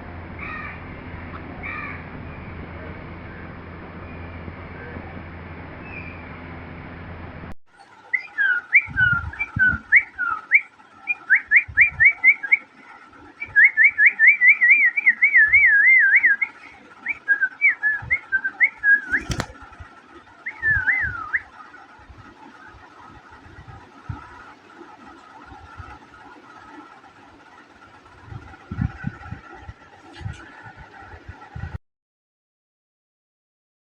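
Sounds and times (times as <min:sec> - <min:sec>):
sharp click: 0:19.0 - 0:19.6.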